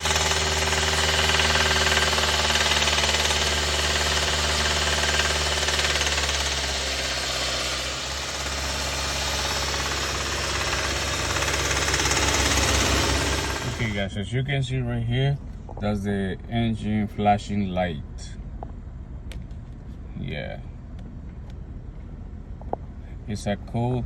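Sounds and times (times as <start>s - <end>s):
car engine running with knocking: 0.0s - 14.0s.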